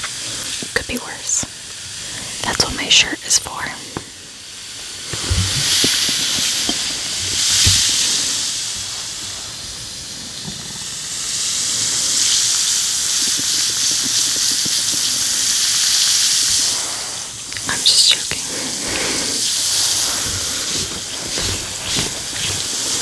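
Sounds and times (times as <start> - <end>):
bath bomb fizzing in water: 3.5 - 23.0.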